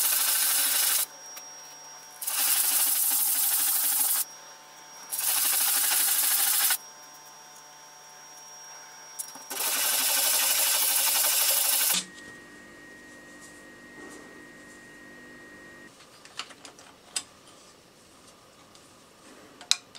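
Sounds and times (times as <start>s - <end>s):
metal rubbed on sandpaper: 0.0s - 1.1s, 2.2s - 4.2s, 5.1s - 6.8s.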